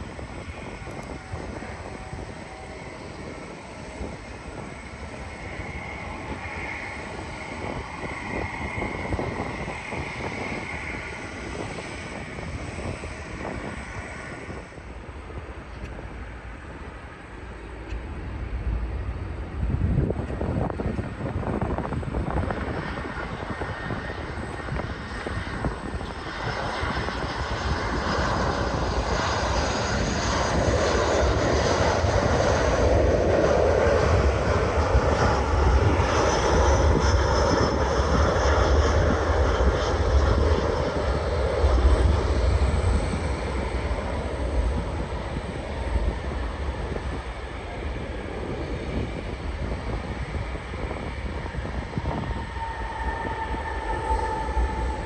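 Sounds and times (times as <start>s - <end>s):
jet airliner passing: 0.0s - 55.0s.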